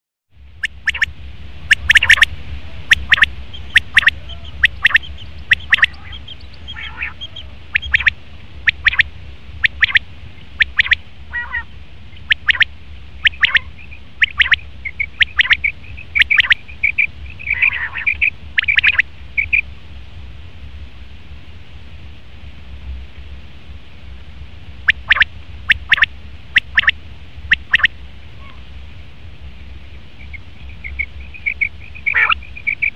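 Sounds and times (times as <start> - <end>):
steady low hum: 0.3 - 32.9
quail calling: 0.6 - 19.6, 24.9 - 28.6, 30.2 - 32.9.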